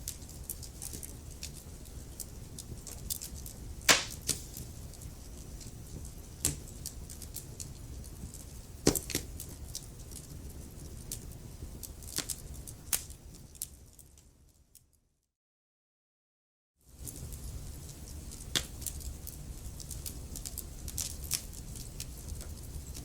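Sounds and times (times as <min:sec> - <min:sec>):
wood fire crackling: 0:00.0 - 0:14.4, 0:16.9 - 0:23.0
loud fire pops: 0:03.9 - 0:04.9.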